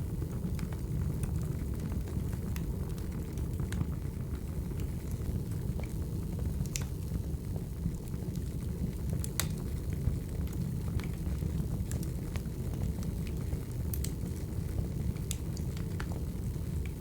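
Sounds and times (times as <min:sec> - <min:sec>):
low rumble of flames: 0:00.0 - 0:17.0
logs crackling and popping: 0:06.6 - 0:07.0, 0:09.1 - 0:09.7, 0:11.8 - 0:17.0.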